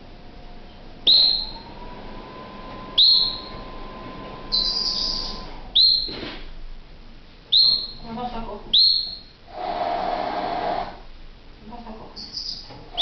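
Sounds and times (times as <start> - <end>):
canary whistling: 1.0 - 1.7, 3.0 - 3.6, 4.5 - 6.2, 7.5 - 8.0, 8.7 - 9.4, 12.2 - 13.0.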